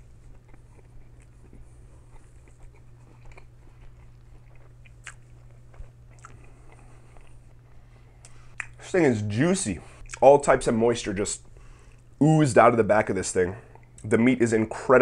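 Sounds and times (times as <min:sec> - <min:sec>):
person chewing sandwich: 0:00.0 - 0:08.8
steady low hum: 0:00.0 - 0:15.0.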